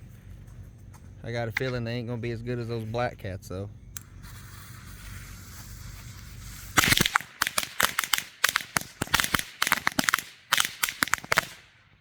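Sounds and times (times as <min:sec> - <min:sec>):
steady hiss: 0:03.0 - 0:11.7
firecrackers going off: 0:04.2 - 0:11.7.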